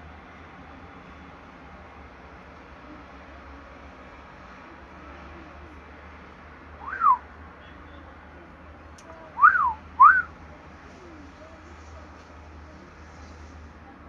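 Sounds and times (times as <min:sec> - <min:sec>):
loud whistled notes: 0:06.8 - 0:07.2, 0:09.4 - 0:10.3.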